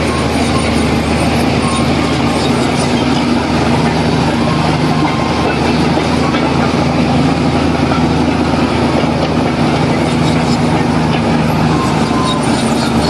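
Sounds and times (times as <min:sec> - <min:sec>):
heavy diesel engine running: 0:00.0 - 0:13.0.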